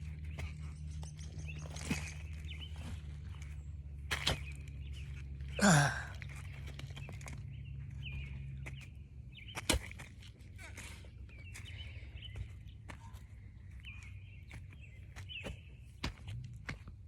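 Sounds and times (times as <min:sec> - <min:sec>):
sharp knocks in dirt: 0:04.0 - 0:04.8, 0:09.5 - 0:10.3.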